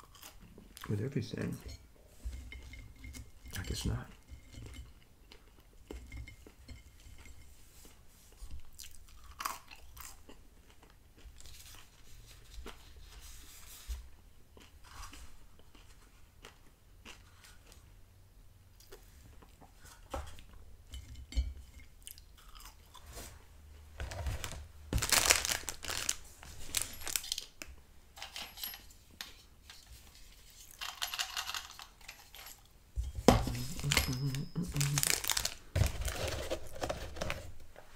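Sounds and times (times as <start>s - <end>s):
chewing crunchy fries: 0.0s - 0.9s, 8.7s - 12.0s, 14.5s - 18.1s, 22.0s - 23.0s, 33.5s - 35.7s
cardboard rustling: 24.0s - 27.3s, 33.2s - 37.8s
mouth and handling noises: 24.0s - 27.8s, 33.0s - 37.9s.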